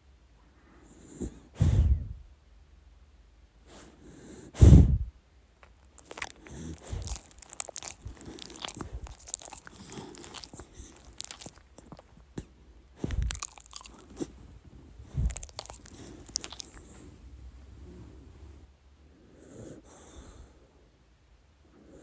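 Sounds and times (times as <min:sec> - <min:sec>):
dog snoring: 0:00.8 - 0:02.2, 0:06.0 - 0:17.2, 0:17.8 - 0:20.6.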